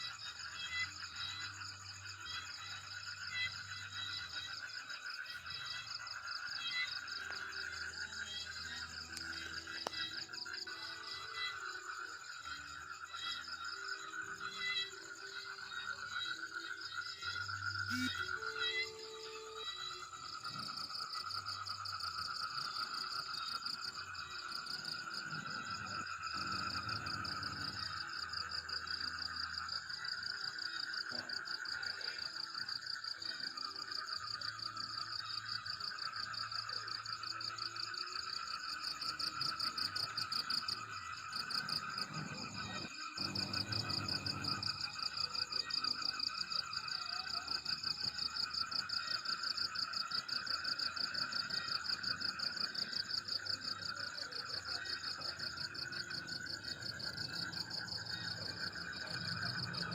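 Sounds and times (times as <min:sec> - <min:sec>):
crickets calling: 0:00.0 - 0:59.9
frogs calling: 0:00.0 - 0:59.9.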